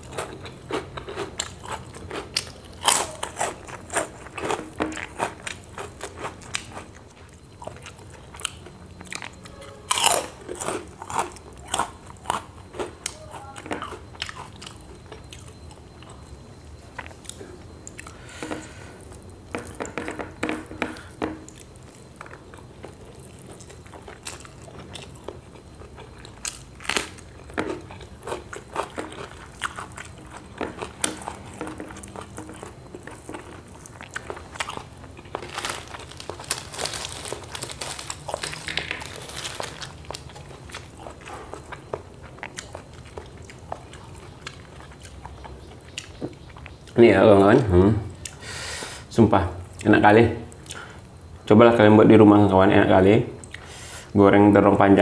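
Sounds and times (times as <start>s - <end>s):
crisp crunching of crackers: 0.0s - 15.7s, 21.5s - 46.7s
chewing and biting: 0.0s - 47.0s.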